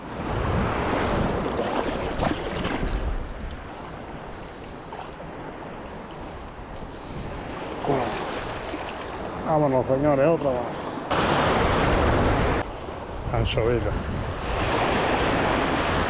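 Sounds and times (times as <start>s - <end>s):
wind noise on microphone: 0.0s - 3.8s, 6.3s - 9.5s, 11.1s - 16.0s
sea surf: 0.0s - 16.0s.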